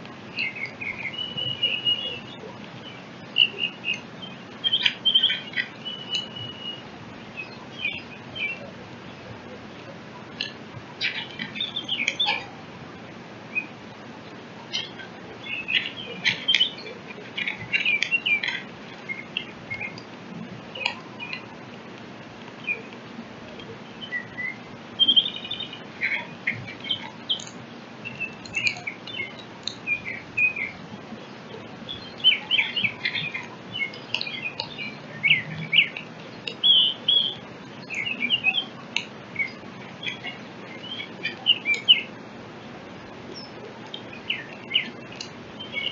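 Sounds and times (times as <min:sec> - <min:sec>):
songbirds chirping and twittering: 0:00.0 - 0:45.9
clear bird whistles: 0:00.3 - 0:02.5, 0:03.3 - 0:08.7, 0:24.0 - 0:30.8, 0:36.6 - 0:38.7.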